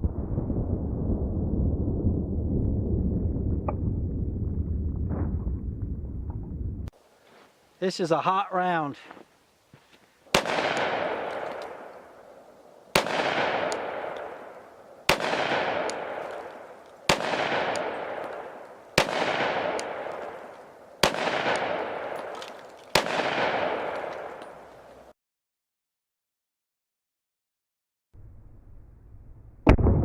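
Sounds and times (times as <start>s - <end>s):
pistol shots with echo: 10.3s - 12.1s, 12.9s - 24.8s.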